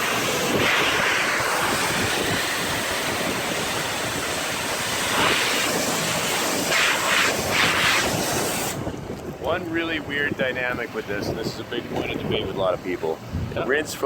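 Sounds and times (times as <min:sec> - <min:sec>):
pressure washer spraying water: 0:00.0 - 0:08.9.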